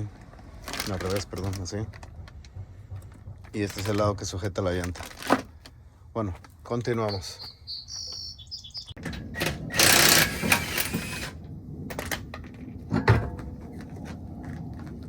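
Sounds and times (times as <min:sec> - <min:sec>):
impact wrench running: 0:09.6 - 0:11.4.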